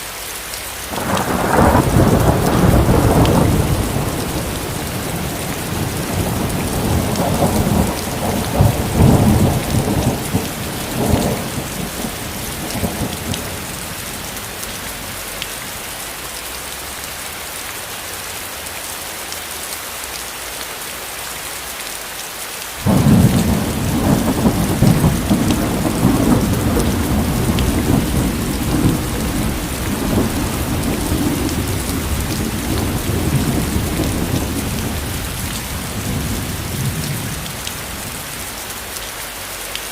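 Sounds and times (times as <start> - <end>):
heavy rain: 0.0 - 39.9
rolling thunder: 0.9 - 15.3, 22.8 - 38.4.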